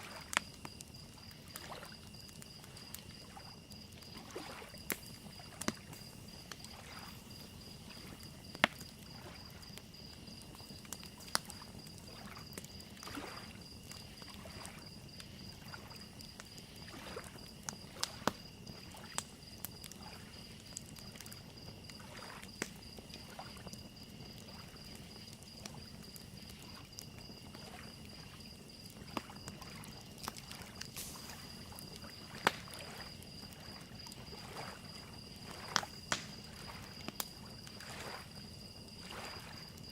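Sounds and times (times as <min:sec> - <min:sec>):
crackling fire with pops: 0:00.0 - 0:39.9
crickets chirping: 0:00.0 - 0:39.9
small waves lapping at shore: 0:01.4 - 0:09.7, 0:11.2 - 0:14.8, 0:16.7 - 0:18.3, 0:22.0 - 0:22.5, 0:30.4 - 0:39.6.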